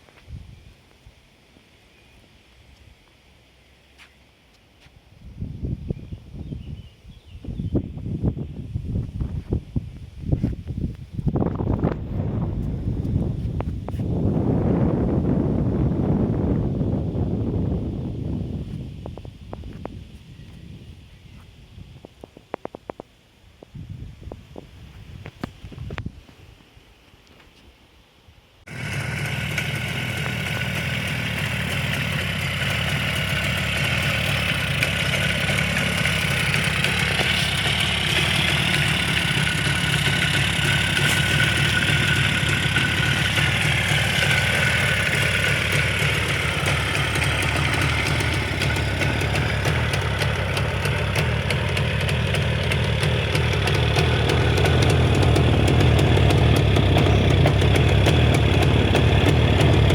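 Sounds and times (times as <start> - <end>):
two-stroke motorcycle engine idling: 28.7 - 59.9.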